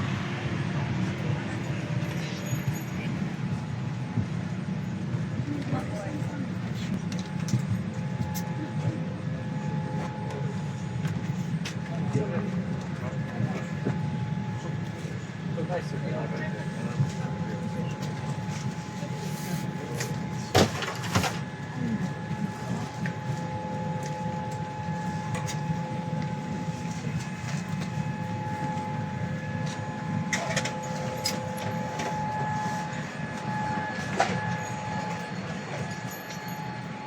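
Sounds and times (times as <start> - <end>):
airplane cabin air hum: 0.0 - 37.0
faint whining tones: 1.1 - 37.0.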